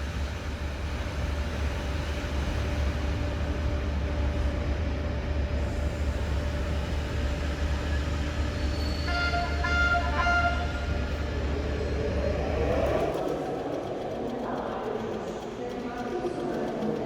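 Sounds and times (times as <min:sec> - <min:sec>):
train rumbling: 0:00.0 - 0:17.0
short horn-like tone: 0:09.0 - 0:10.9.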